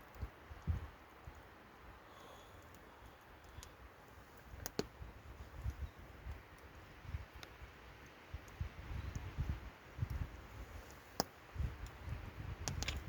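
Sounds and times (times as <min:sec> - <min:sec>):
faint sharp clicks: 0:02.6 - 0:03.8, 0:04.6 - 0:04.9, 0:07.3 - 0:09.3, 0:10.8 - 0:13.0.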